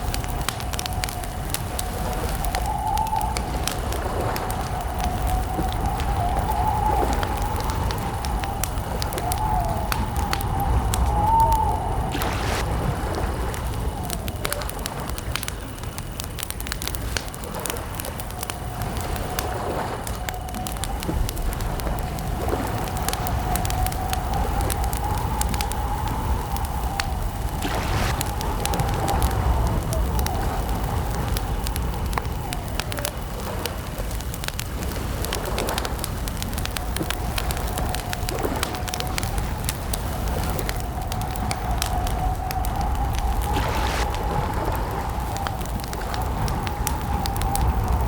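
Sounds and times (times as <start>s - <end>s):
campfire crackling: 0.0s - 48.0s
crickets chirring: 0.0s - 48.0s
low rumble: 3.4s - 15.2s, 20.0s - 33.2s, 36.0s - 48.0s.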